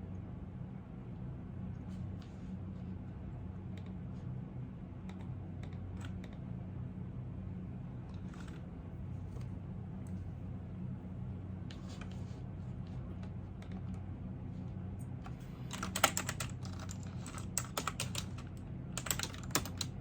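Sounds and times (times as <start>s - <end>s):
steady low hum: 0.0s - 20.0s
keyboard typing: 15.7s - 20.0s.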